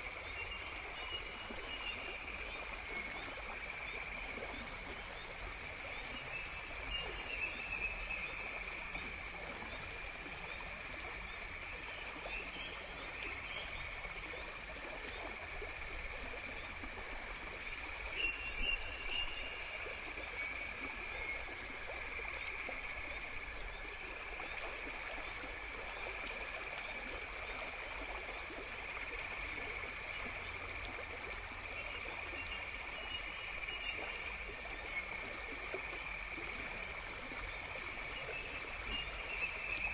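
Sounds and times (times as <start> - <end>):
insects calling: 4.5 - 10.3, 36.5 - 39.9.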